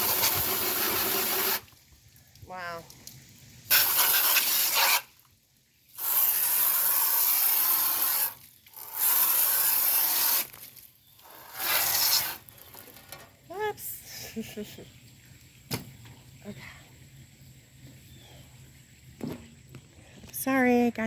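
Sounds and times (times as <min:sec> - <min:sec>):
hose water spraying into fan: 0:00.0 - 0:13.2.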